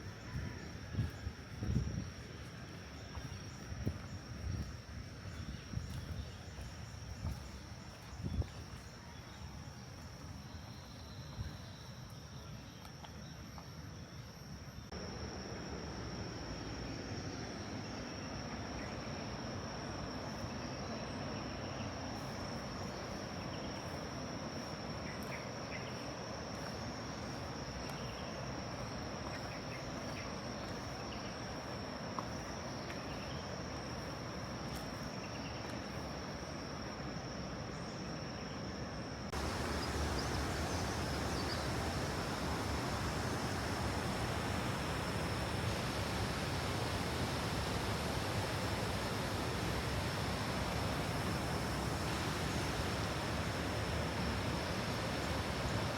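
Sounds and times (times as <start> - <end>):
insects droning: 0.0 - 55.9
waterfall roar: 39.4 - 55.9.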